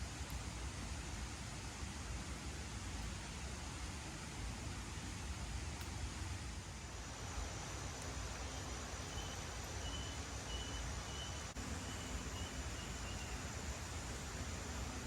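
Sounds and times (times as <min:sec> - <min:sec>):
faint high chirp: 0:08.4 - 0:13.4.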